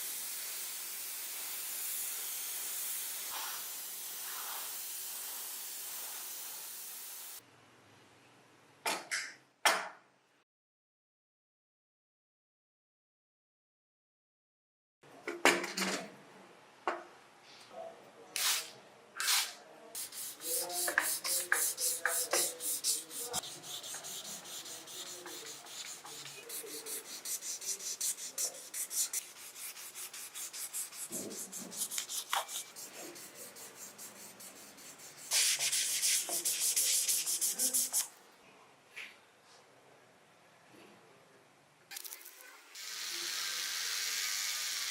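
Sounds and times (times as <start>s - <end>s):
hand sanding strokes: 20.0s - 38.1s.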